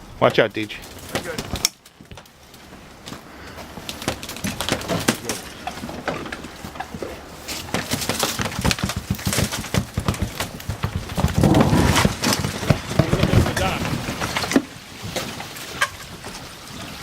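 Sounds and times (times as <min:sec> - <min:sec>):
icy water splashing on hull: 0:00.8 - 0:17.0
broken ice crackling and knocking: 0:07.7 - 0:15.3.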